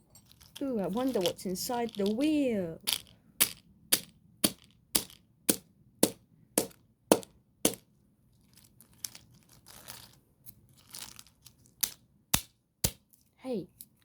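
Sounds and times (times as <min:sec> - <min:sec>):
hammer striking toy car: 0:03.4 - 0:07.8.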